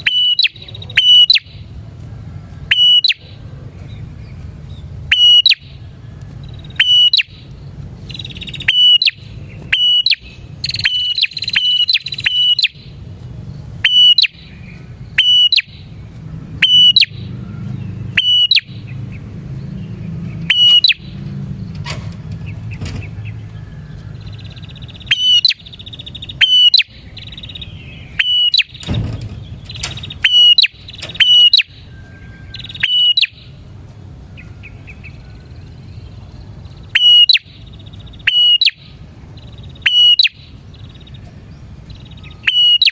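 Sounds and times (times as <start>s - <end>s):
bird chirping: 0.0s - 42.9s.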